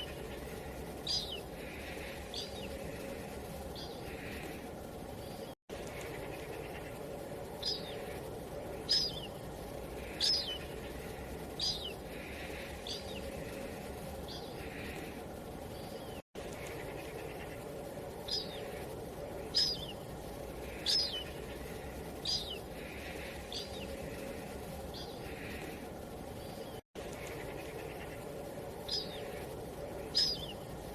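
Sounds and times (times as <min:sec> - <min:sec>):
wind-like ambience: 0:00.0 - 0:30.9.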